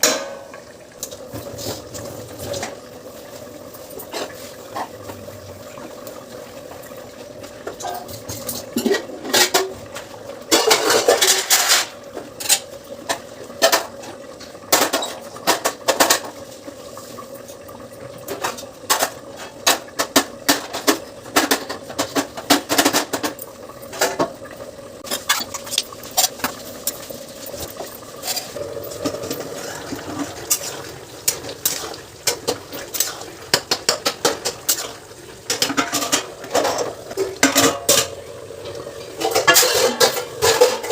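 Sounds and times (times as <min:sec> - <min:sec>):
metal utensils clinking on cookware: 0:10.5 - 0:14.0, 0:25.0 - 0:38.2, 0:38.9 - 0:40.9.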